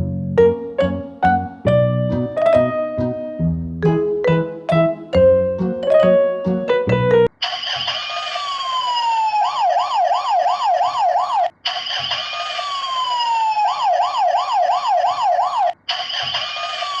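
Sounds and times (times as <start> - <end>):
electronic emergency siren: 7.4 - 17.0.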